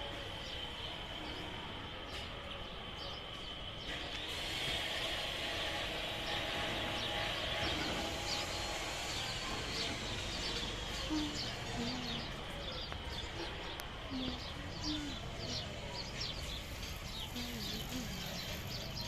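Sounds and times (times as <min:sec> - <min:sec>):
small birds chirping: 0:00.0 - 0:19.0
steady outdoor hiss: 0:00.0 - 0:19.0
low cooing calls: 0:08.9 - 0:16.4, 0:17.2 - 0:19.0.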